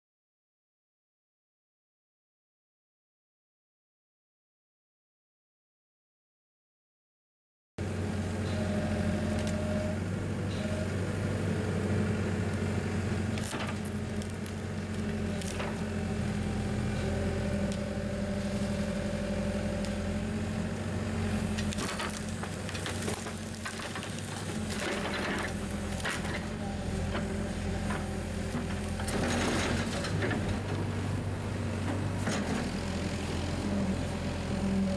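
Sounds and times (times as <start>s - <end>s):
engine humming: 7.8s - 34.9s.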